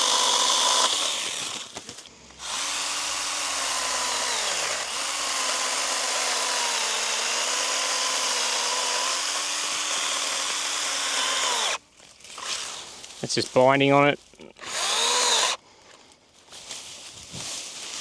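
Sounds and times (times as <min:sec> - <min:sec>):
electric pruner cutting branch: 0:00.0 - 0:11.8, 0:14.6 - 0:15.6.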